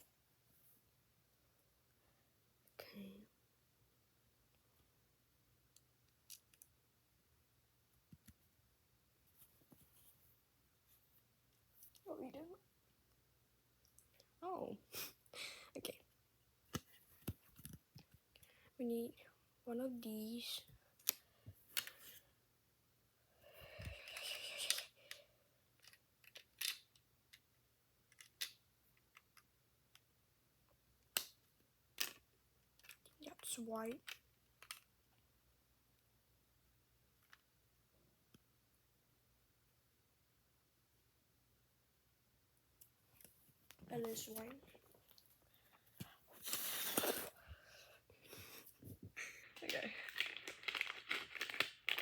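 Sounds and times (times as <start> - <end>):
plastic toy bricks clicking: 25.8 - 27.4, 49.6 - 52.0
plastic pieces rustling: 49.6 - 52.0.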